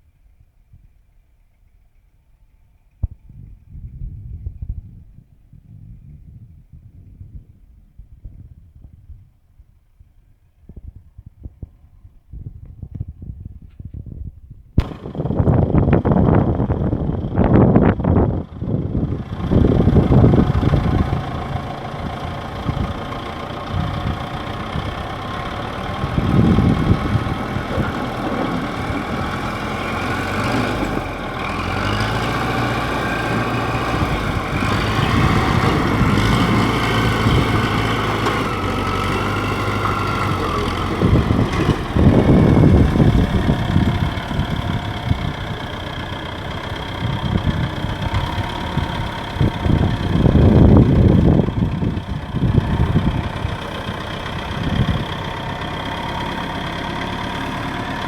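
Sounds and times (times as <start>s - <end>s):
diesel engine running: 14.8s - 58.0s.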